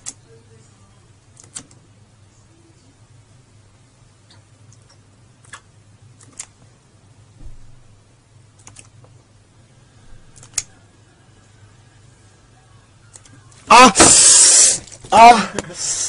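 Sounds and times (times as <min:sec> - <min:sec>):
low steady hum: 0:00.0 - 0:16.0
soft dull thump: 0:07.4 - 0:07.9.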